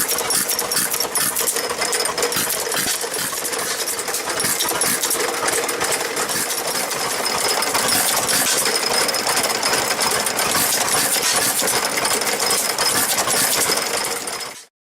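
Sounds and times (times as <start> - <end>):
engine running with mechanical clatter: 0.0 - 14.7.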